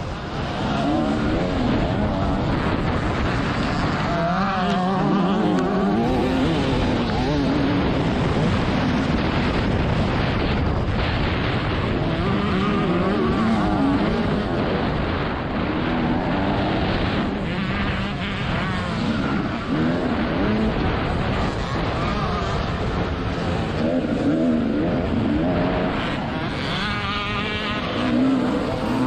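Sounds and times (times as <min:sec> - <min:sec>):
motocross engine revving: 0:00.0 - 0:29.0.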